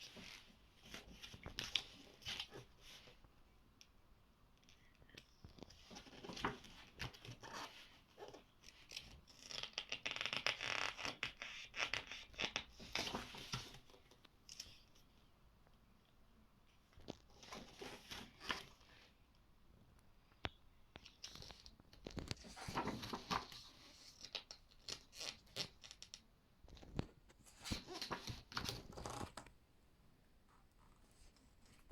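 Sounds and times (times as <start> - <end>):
paper pages being turned: 5.5 - 13.9, 21.0 - 29.4.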